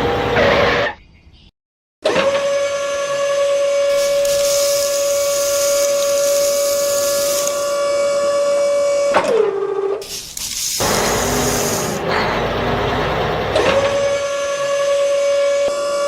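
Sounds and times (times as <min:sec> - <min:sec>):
small electric motor whining: 0:03.5 - 0:08.7, 0:10.1 - 0:12.0
hiss: 0:03.9 - 0:07.8, 0:10.0 - 0:12.1.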